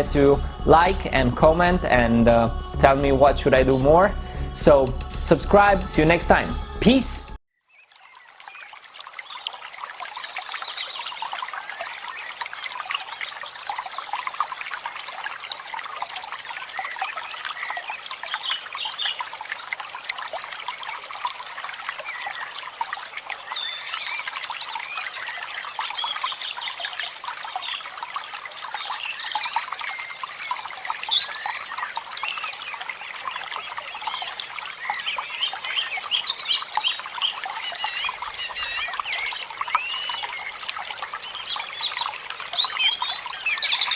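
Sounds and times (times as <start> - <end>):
water trickling: 0.0 - 7.0, 7.6 - 43.9
small birds chirping: 28.8 - 43.9.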